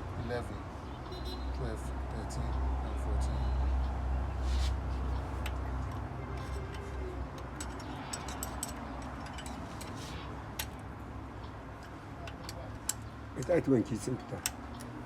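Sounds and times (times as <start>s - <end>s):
metallic clicks of tools and bolts: 5.4s - 10.9s, 11.8s - 15.0s.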